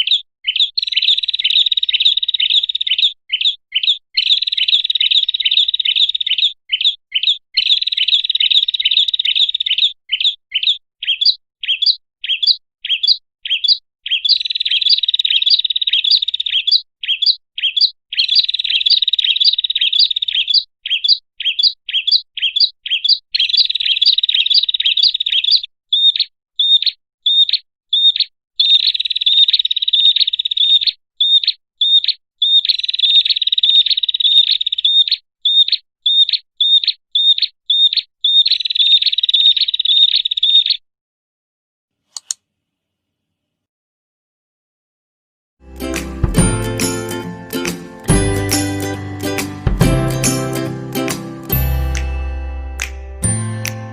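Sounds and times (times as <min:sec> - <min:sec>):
prinia bird chirping: 0:00.0 - 0:40.8.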